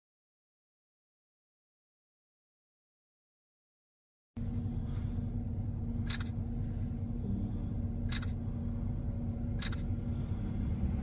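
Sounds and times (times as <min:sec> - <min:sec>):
constant hum: 0:04.4 - 0:11.0
vehicle rumbling: 0:04.4 - 0:11.0
sharp clicks: 0:06.0 - 0:06.4, 0:08.1 - 0:08.4, 0:09.6 - 0:09.9.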